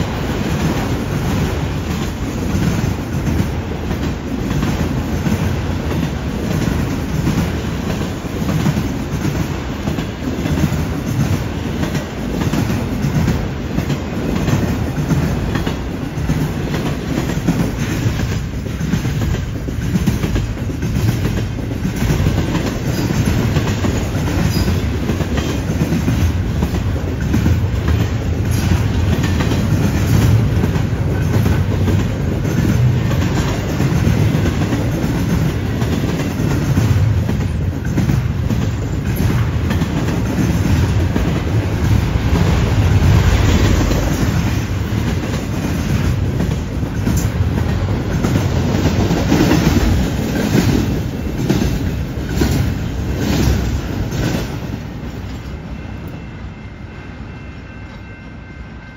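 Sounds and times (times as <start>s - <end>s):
wheels clacking over track joints: 0.0s - 55.5s
freight train wheels rumbling: 0.0s - 58.9s.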